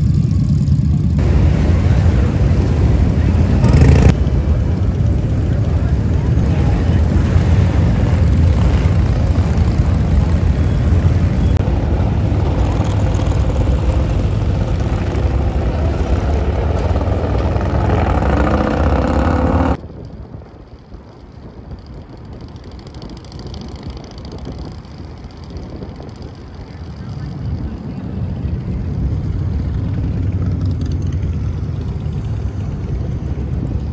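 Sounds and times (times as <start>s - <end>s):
motorcycle engine revving: 0.0s - 4.4s, 6.4s - 19.8s
motorcycle engines running: 0.0s - 33.9s.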